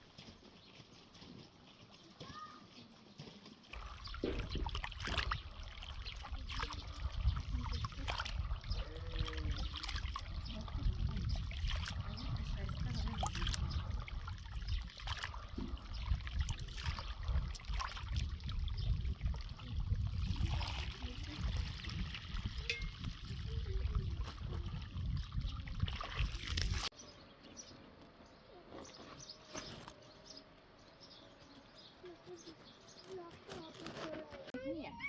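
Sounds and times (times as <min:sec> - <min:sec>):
outdoor background: 0:00.0 - 0:35.0
water trickling: 0:03.7 - 0:26.9.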